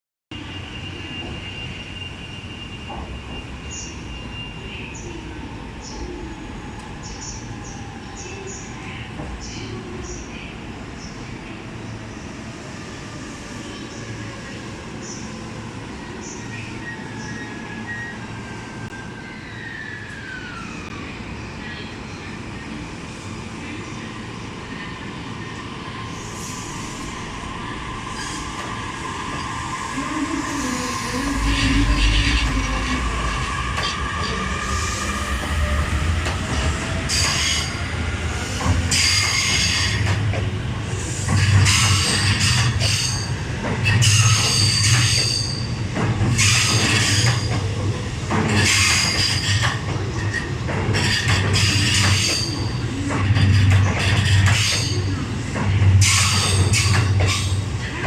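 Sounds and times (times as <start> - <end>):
train rumble: 20.1 - 58.0.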